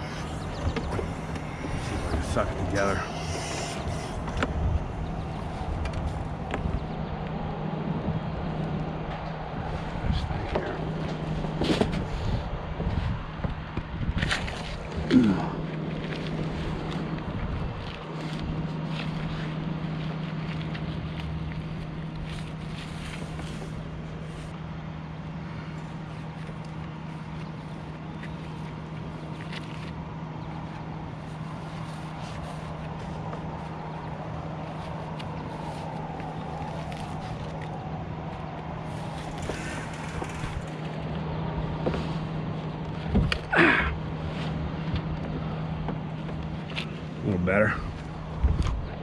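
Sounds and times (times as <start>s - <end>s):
truck engine idling: 0.0s - 12.8s.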